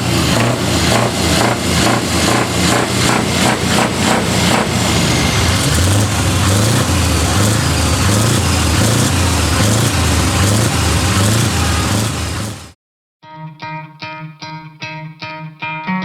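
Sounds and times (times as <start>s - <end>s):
truck diesel engine running: 0.0s - 12.8s.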